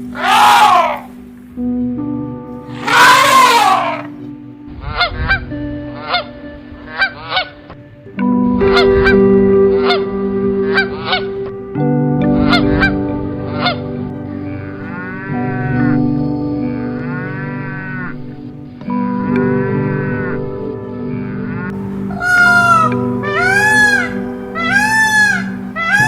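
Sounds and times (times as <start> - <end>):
long drawn-out animal call: 0.0 - 1.1, 2.7 - 4.1, 21.8 - 26.0
background music with held tones: 0.0 - 26.0
waterfowl honking: 2.8 - 4.0, 21.8 - 26.0
loud falling cry: 2.8 - 4.1, 22.0 - 26.0.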